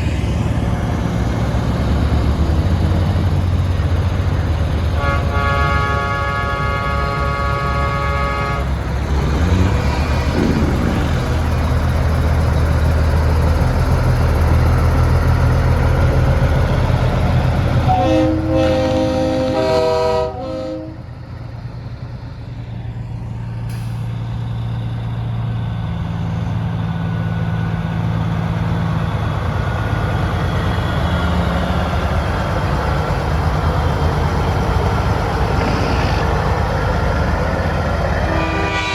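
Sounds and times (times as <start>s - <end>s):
diesel truck engines rumbling: 0.0s - 38.9s
truck air horn blasts: 5.0s - 8.8s, 17.9s - 21.1s, 38.1s - 38.9s.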